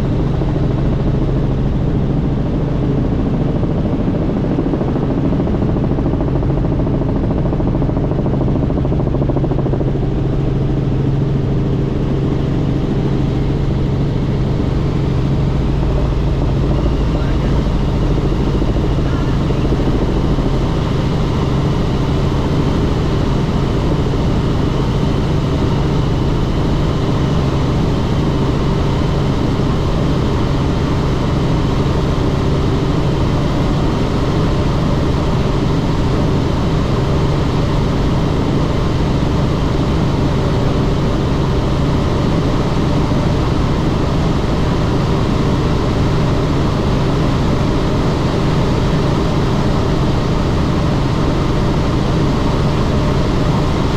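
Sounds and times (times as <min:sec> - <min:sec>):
helicopter engine and rotor drone: 0:00.0 - 0:53.9.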